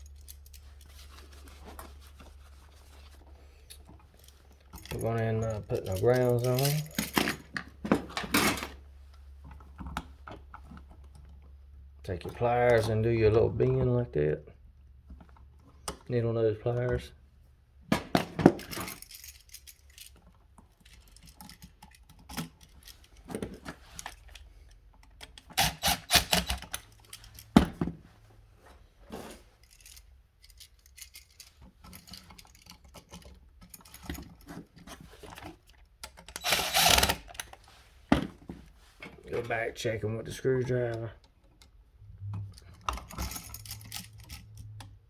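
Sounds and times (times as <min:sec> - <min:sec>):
metal tool clicks and scrapes: 0:25.3 - 0:27.5.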